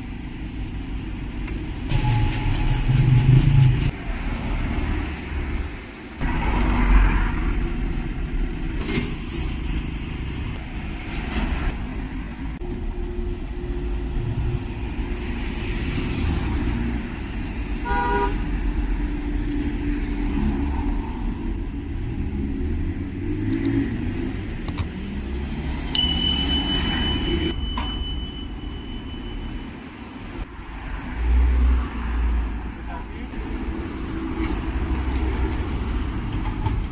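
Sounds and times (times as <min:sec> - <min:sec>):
cars passing: 0:01.2 - 0:08.9, 0:09.7 - 0:27.6, 0:29.2 - 0:36.9
car horn toot: 0:17.8 - 0:18.4.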